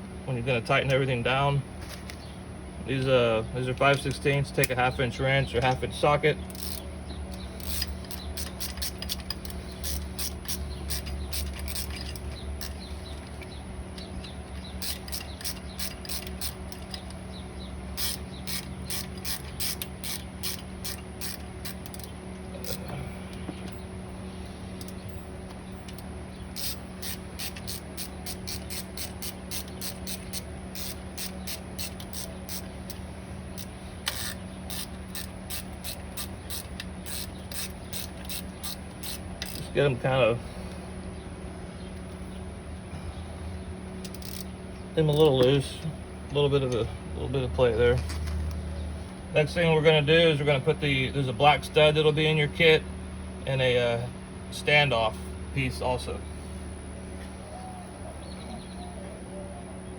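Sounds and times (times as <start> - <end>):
ratchet clicking: 6.5 - 17.3, 17.9 - 23.8, 24.8 - 39.8, 44.0 - 44.5, 45.1 - 45.8.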